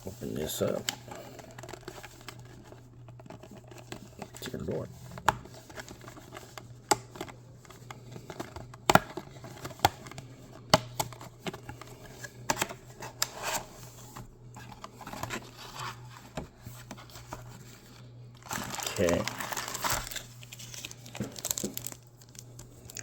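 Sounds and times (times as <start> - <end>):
packaging rustling and scraping: 0.0 - 23.0
steady low hum: 0.0 - 23.0
cardboard packaging clicks and taps: 5.2 - 11.9, 21.0 - 22.4.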